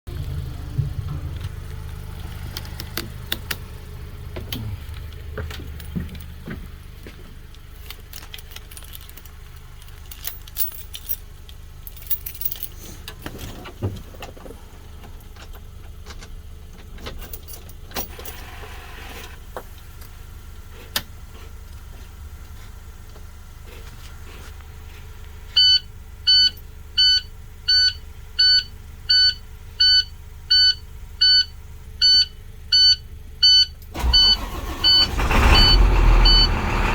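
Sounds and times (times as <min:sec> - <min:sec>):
diesel bus engine idling: 0:00.1 - 0:08.5, 0:12.7 - 0:36.9
light clicks and rattles: 0:04.4 - 0:18.4.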